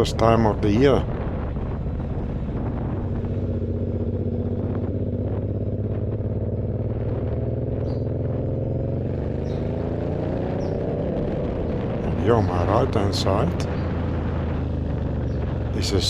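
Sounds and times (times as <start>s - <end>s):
motorcycle engine idling: 1.1s - 9.8s, 13.1s - 16.0s.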